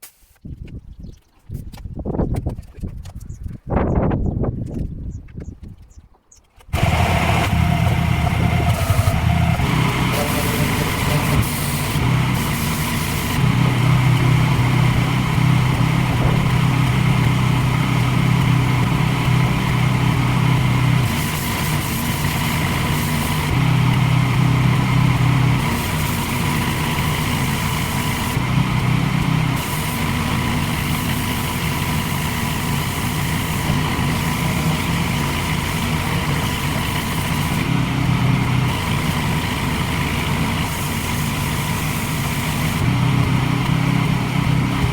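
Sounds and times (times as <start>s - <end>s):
pressure washer motor hum: 6.7s - 44.9s
hiss of spray: 8.5s - 13.4s.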